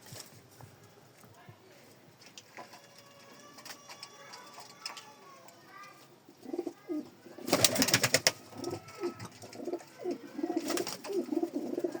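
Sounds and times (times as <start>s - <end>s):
pigeons cooing: 6.3s - 12.0s.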